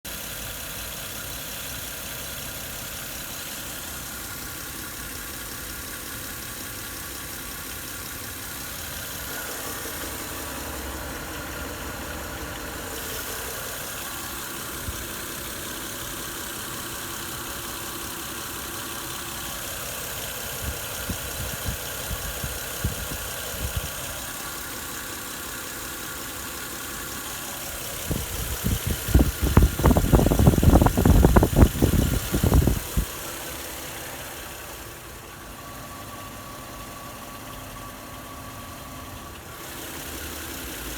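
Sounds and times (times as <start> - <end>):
engine idling with a knock: 4.4 - 26.5, 27.1 - 33.6.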